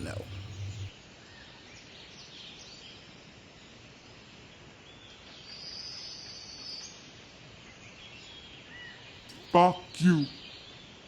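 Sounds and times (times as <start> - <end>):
high steady buzz: 0.0 - 0.9.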